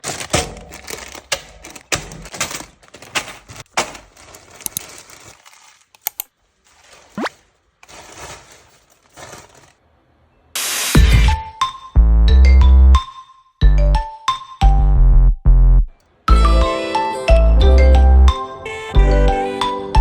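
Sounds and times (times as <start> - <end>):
plastic bricks clattering: 0.0 - 9.8.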